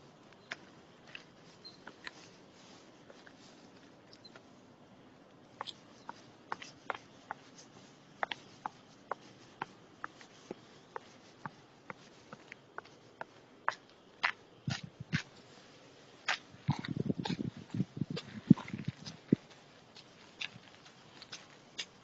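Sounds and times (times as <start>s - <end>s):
faint outdoor background: 0.0s - 22.0s
footsteps on forest path: 5.6s - 22.0s.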